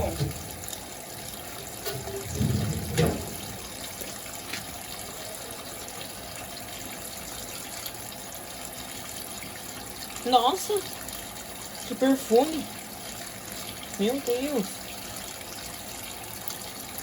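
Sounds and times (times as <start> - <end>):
washing machine filling with water: 0.0 - 17.0
low thump: 2.2 - 3.7.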